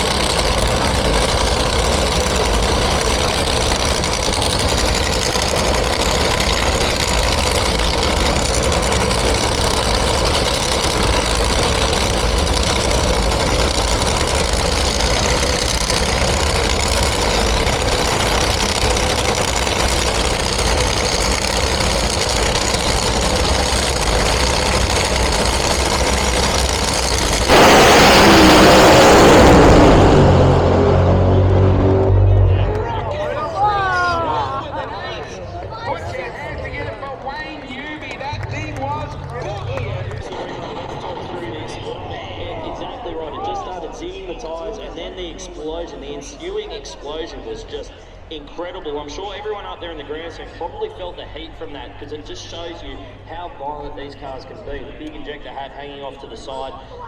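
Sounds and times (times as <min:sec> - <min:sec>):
racing car engine idling: 0:00.0 - 0:34.0
loud rush of noise: 0:00.0 - 0:34.2.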